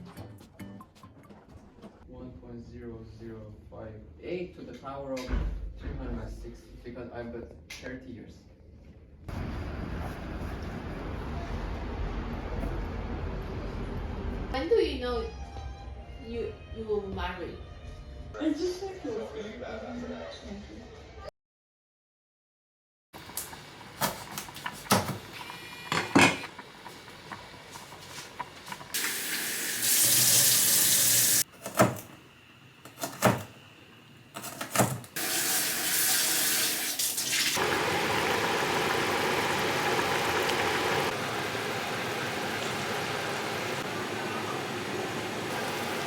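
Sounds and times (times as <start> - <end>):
tap water gushing into sink: 26.0 - 31.4, 35.2 - 46.0.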